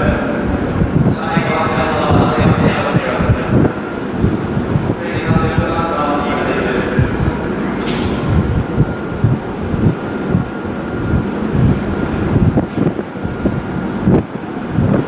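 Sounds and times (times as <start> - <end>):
train rumbling: 0.0 - 15.0
low thumps: 6.9 - 15.0
burst of hiss: 7.8 - 8.6.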